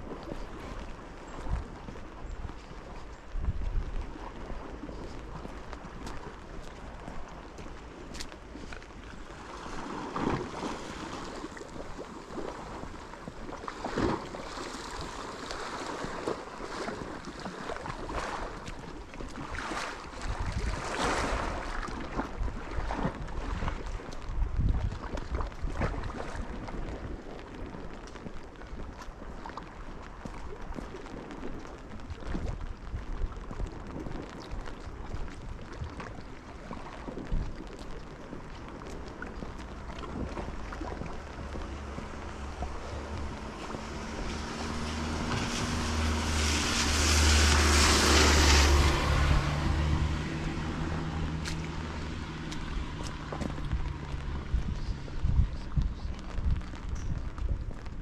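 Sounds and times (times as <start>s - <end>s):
rain drips and patter: 0.0s - 58.0s
wind and water rushing: 0.0s - 58.0s
wind buffeting microphone: 0.0s - 58.0s
low bumps: 37.2s - 58.0s.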